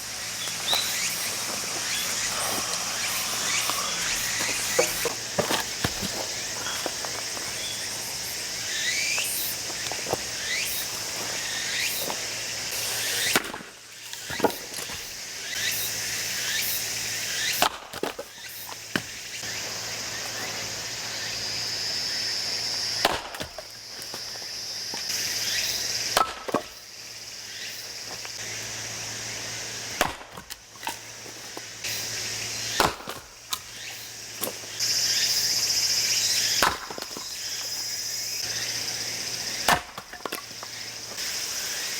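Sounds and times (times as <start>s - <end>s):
axe chopping into log: 2.1s - 7.6s, 14.2s - 15.1s, 17.6s - 18.2s, 23.0s - 23.7s, 26.1s - 26.8s, 30.0s - 31.0s, 32.7s - 33.7s, 36.6s - 37.3s, 39.6s - 40.5s.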